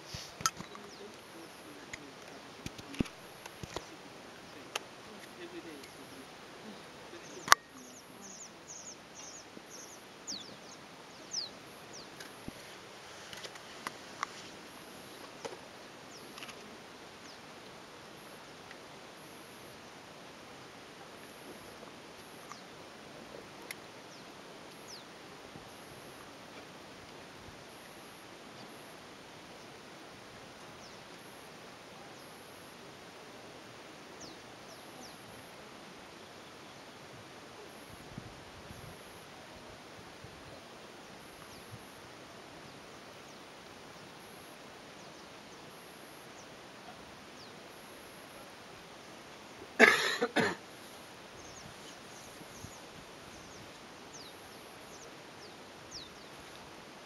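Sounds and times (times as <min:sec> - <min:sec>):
small birds chirping: 0:00.0 - 0:20.1, 0:21.0 - 0:26.4, 0:27.8 - 0:33.0, 0:33.8 - 0:38.1, 0:40.6 - 0:56.7
steady hiss: 0:00.0 - 0:57.0
small bird chirping: 0:00.1 - 0:12.3.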